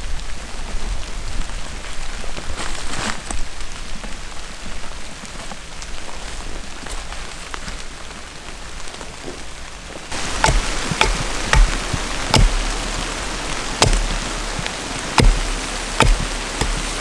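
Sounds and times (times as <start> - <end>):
rain falling steadily: 10.0 - 17.0
drops ticking: 10.2 - 17.0
sharp taps: 10.2 - 17.0.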